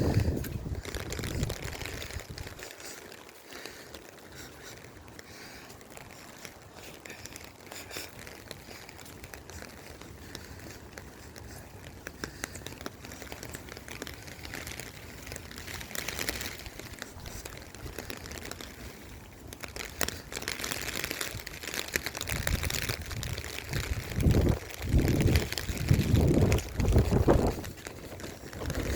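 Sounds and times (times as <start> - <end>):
wind buffeting microphone: 0.0 - 2.8, 19.6 - 28.9
crinkly rustling at microphone: 0.0 - 28.9.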